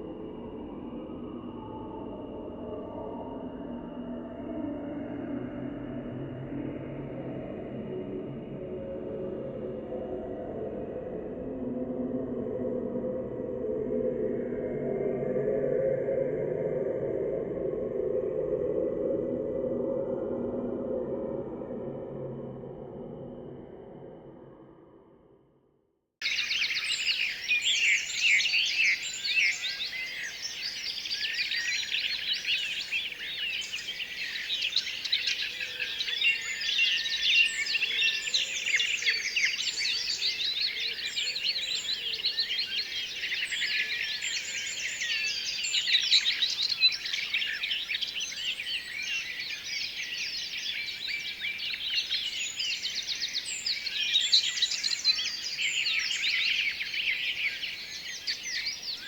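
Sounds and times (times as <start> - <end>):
small birds chirping: 26.2 - 59.0.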